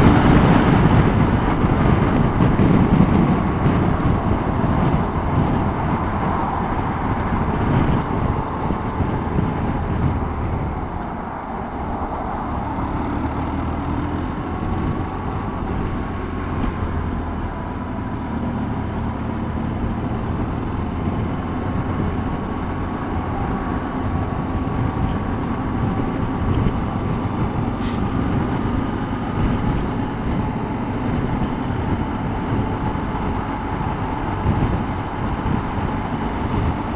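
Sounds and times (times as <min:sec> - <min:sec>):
low rumble of traffic: 0:00.0 - 0:36.9.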